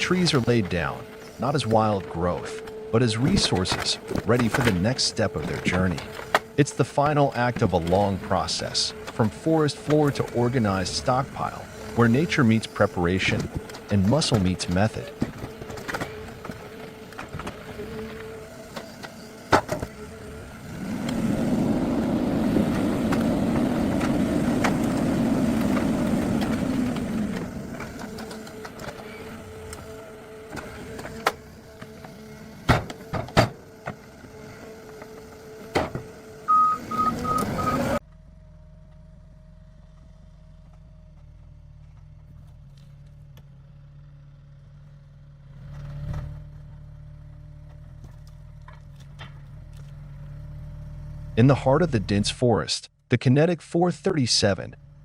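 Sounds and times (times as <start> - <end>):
quiet machine hum: 0.0 - 43.9
heavy machinery engine: 0.0 - 52.2
short beeps: 36.5 - 38.0.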